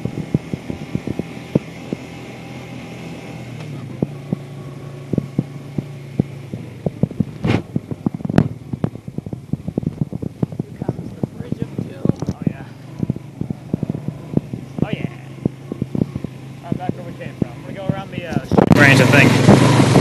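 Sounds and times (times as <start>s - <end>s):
loud thumps: 0.0s - 2.4s, 3.2s - 20.0s
atv engine running: 0.0s - 20.0s
knocks and rattles: 3.6s - 18.8s.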